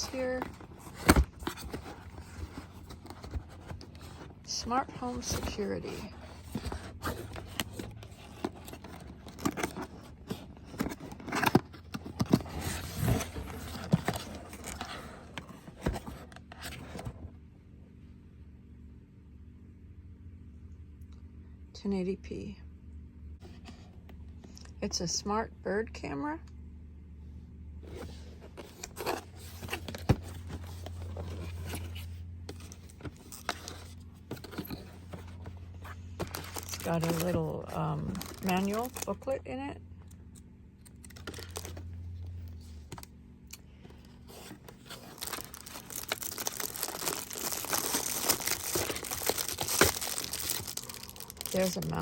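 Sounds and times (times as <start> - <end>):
packaging being opened: 0.0 - 4.4, 5.1 - 17.1, 28.0 - 39.2, 40.9 - 41.8, 44.0 - 52.0.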